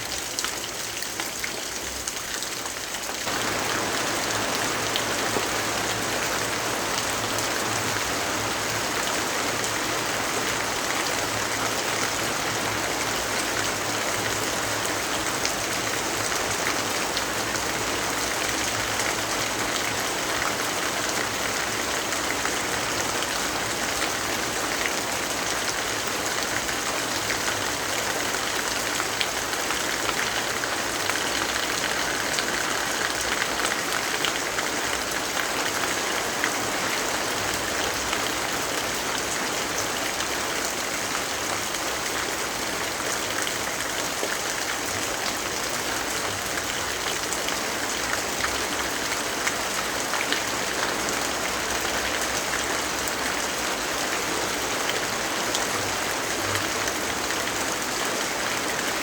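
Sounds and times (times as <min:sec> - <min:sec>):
heavy rainfall: 0:00.0 - 0:59.0.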